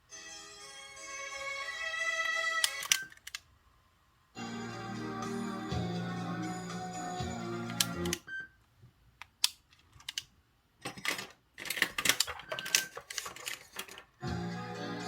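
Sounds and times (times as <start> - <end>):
music: 0.1 - 2.9, 4.4 - 8.2, 14.2 - 15.0.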